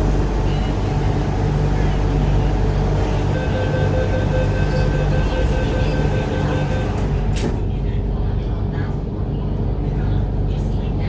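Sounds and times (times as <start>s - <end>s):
steady whine: 0.0s - 7.4s
low hum: 0.0s - 10.8s
train rumble: 0.0s - 11.0s.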